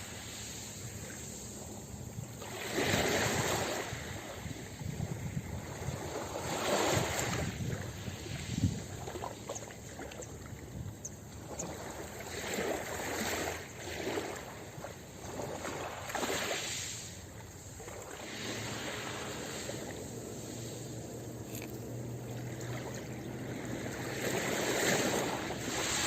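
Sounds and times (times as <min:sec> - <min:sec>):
ocean waves washing onto beach: 0:00.0 - 0:26.0.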